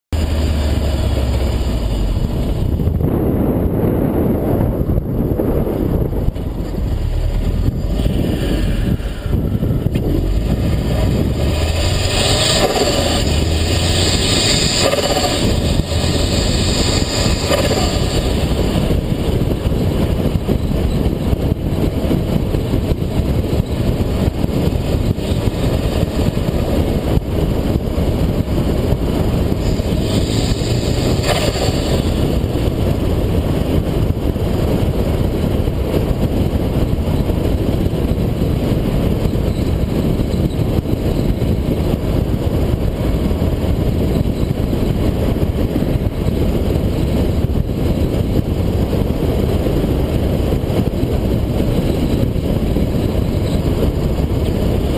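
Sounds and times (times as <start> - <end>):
car engine and road rumble: 0.1 - 54.9.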